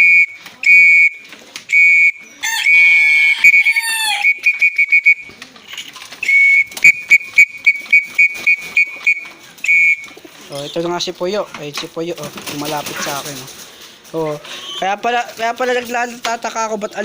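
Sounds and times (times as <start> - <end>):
whistle blasts and toots: 0.0 - 5.3, 6.2 - 10.2
wavering animal call: 1.7 - 5.3.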